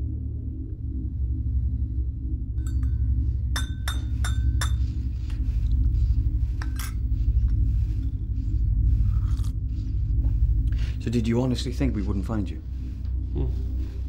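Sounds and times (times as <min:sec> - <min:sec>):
teaspoon clinking in a teacup: 0:03.6 - 0:04.8.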